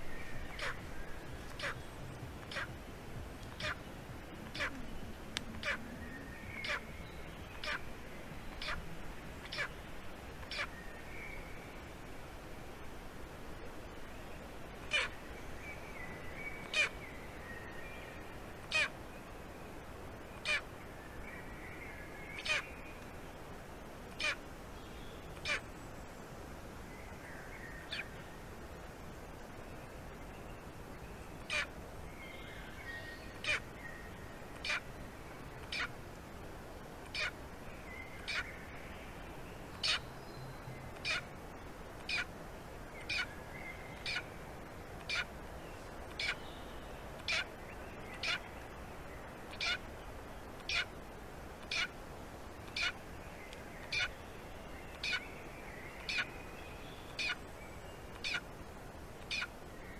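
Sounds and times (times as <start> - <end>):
bird calling in sharp notes: 3.6 - 3.8, 4.5 - 4.9.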